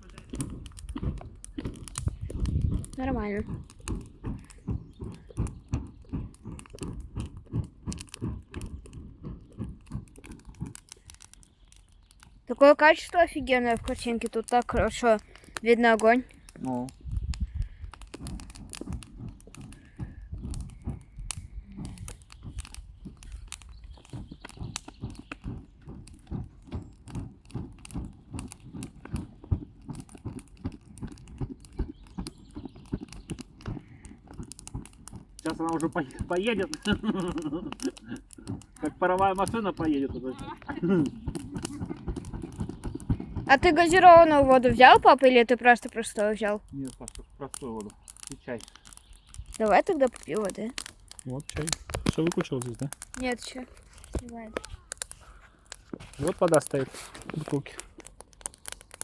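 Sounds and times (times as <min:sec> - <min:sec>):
dull low thuds: 0:00.0 - 0:11.4, 0:16.2 - 0:36.4, 0:38.2 - 0:45.2
campfire crackling and popping: 0:00.0 - 0:59.0.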